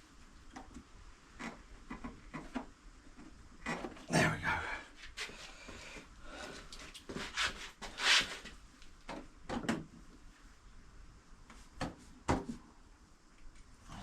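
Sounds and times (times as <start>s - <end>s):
knocks scrapes and rubs: 7.1s - 8.5s.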